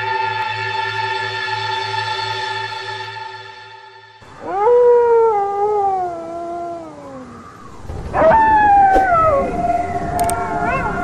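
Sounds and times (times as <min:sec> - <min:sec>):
music drone: 0:00.0 - 0:04.5
long howl: 0:04.2 - 0:11.0.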